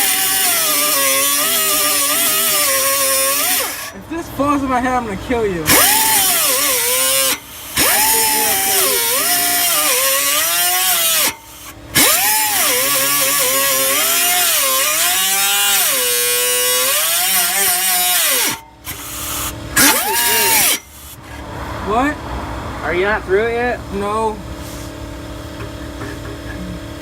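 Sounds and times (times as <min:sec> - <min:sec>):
power tool motor whine: 0:00.0 - 0:04.0, 0:05.7 - 0:21.2.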